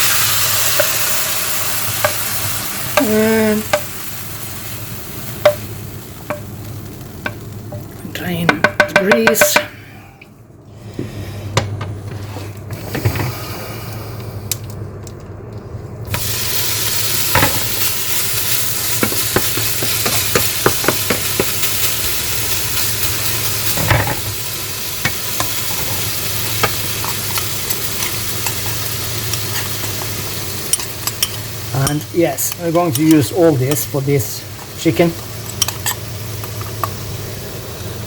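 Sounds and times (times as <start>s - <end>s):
chicken sizzling in a pan: 0.0s - 7.8s, 16.1s - 38.0s
utensil knocking against pan: 8.5s - 9.7s, 19.0s - 21.7s.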